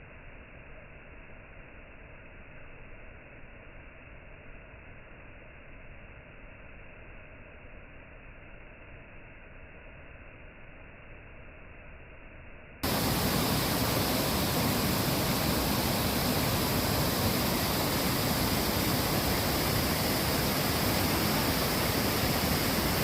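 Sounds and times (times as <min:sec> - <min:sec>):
waterfall rushing: 0:12.8 - 0:23.0.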